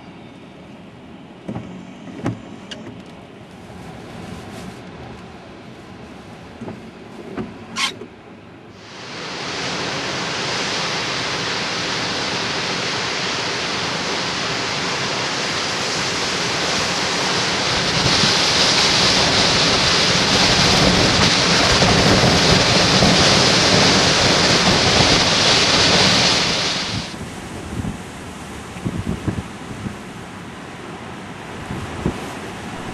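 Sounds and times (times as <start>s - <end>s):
wind buffeting microphone: 16.2s - 30.4s, 31.3s - 32.9s.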